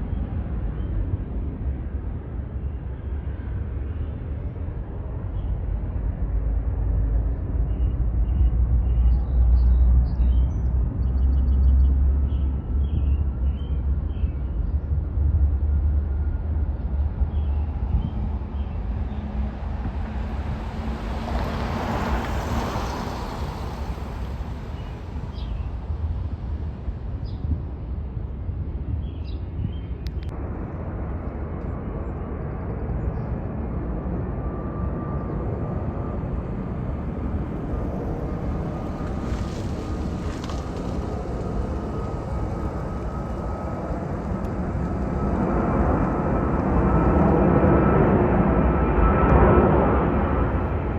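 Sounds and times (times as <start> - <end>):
wind buffeting microphone: 0.0 - 50.9
jet airliner taking off: 10.7 - 50.9.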